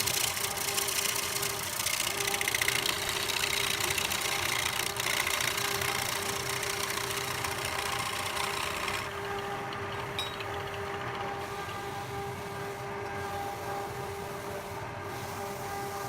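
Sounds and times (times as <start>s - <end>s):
cutter shaving wood hiss: 0.0s - 9.1s
lathe motor hum: 0.0s - 16.0s.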